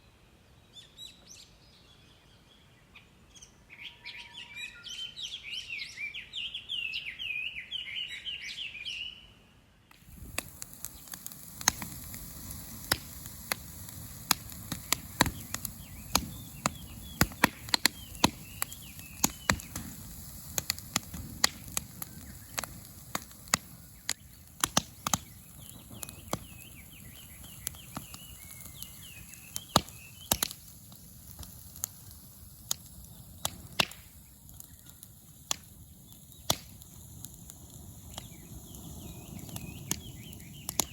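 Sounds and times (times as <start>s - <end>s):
campfire crackling and popping: 9.9s - 40.9s.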